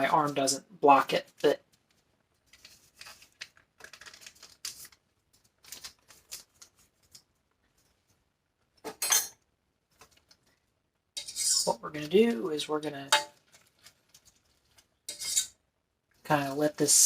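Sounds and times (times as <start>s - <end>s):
paper packet rustling and tearing: 1.2s - 8.2s, 13.3s - 15.0s.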